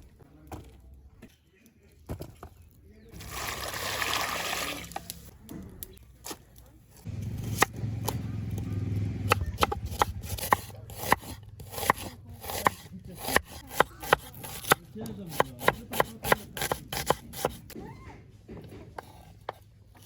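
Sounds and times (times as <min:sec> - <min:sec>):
knife chopping on board: 0:07.4 - 0:08.2, 0:09.2 - 0:17.8.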